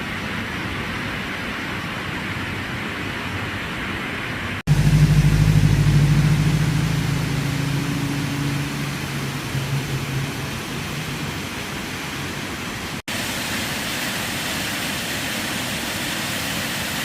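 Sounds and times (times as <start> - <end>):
steady rushing noise: 0.0 - 17.0
vehicle engine humming: 4.7 - 13.0.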